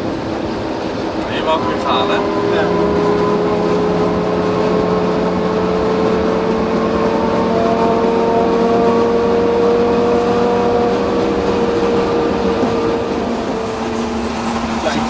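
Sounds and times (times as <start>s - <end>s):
car engine accelerating: 0.0s - 15.0s
road noise: 0.0s - 15.0s.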